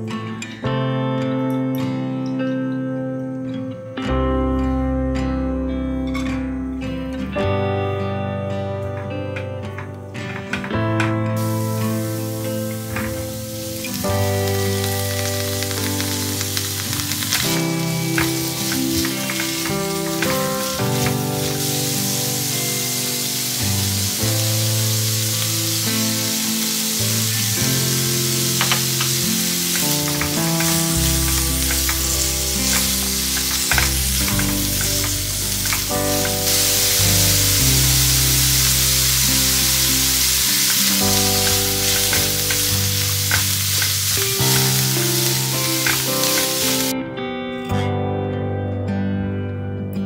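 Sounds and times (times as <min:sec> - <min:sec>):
background music: 0:00.0 - 0:50.0
vegetables sizzling in hot oil: 0:11.4 - 0:46.9.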